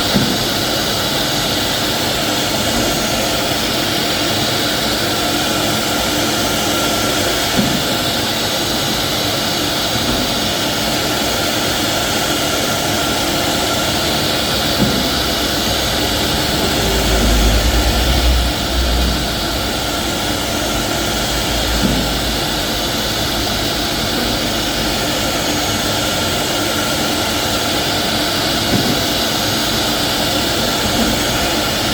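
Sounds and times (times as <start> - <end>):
low rumble: 14.2 - 25.1.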